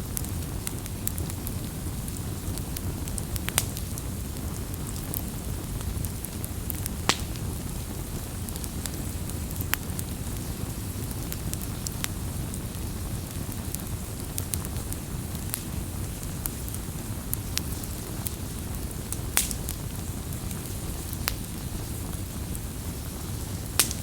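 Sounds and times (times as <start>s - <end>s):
fire pops and snaps: 0.0s - 24.0s
low rumble of burning: 0.0s - 24.0s.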